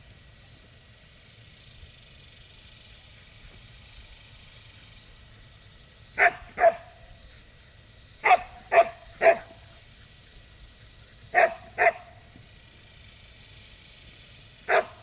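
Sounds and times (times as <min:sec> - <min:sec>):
dog barking: 0:06.2 - 0:07.0, 0:08.2 - 0:09.6, 0:11.3 - 0:12.2, 0:14.7 - 0:15.0.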